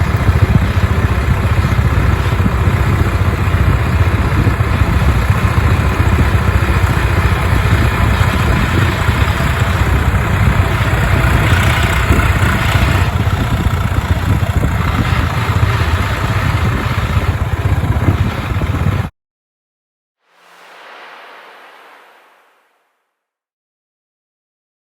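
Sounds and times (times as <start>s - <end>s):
heavy diesel engine clattering: 0.0s - 19.1s.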